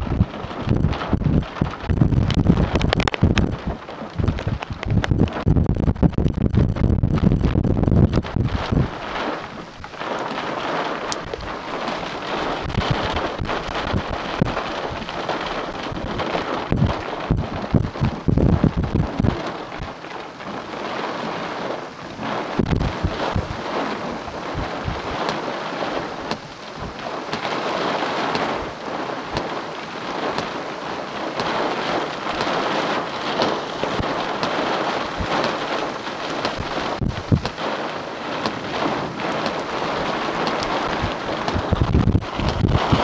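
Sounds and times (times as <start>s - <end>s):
heavy rain hissing: 0.0s - 43.0s
wind buffeting microphone: 0.0s - 43.0s.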